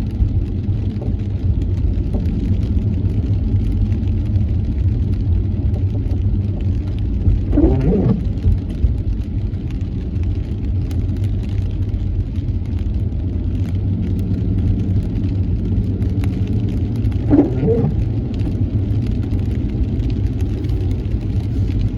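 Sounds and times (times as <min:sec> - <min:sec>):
car engine and road rumble: 0:00.0 - 0:21.9
rain: 0:00.0 - 0:21.9
short wavering squeaks: 0:07.5 - 0:08.3, 0:17.3 - 0:18.0.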